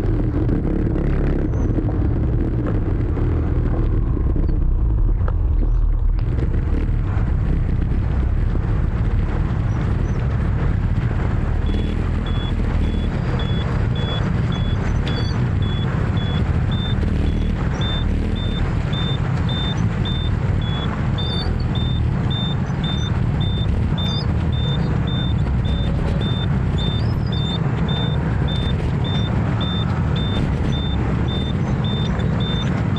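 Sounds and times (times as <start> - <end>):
scooter engine and road rumble: 0.0 - 32.9
high electronic beep: 11.6 - 32.9.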